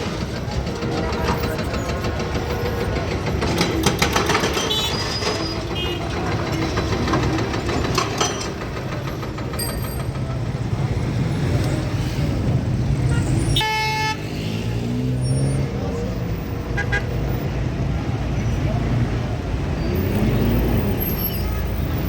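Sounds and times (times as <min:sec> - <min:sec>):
vehicle engines rumbling: 0:00.0 - 0:22.0
car horn toot: 0:13.1 - 0:14.3.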